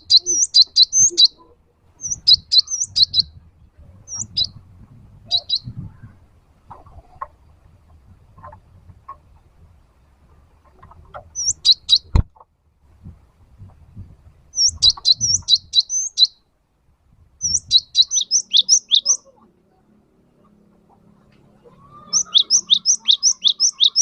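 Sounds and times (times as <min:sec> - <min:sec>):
bird singing rapid high notes: 0:02.0 - 0:03.4, 0:17.4 - 0:19.3, 0:22.0 - 0:24.0.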